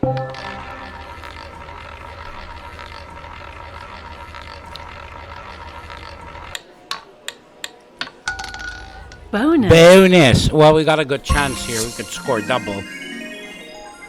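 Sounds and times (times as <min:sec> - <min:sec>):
ball clicking: 0:00.0 - 0:09.3
roulette wheel whirring: 0:00.0 - 0:09.4.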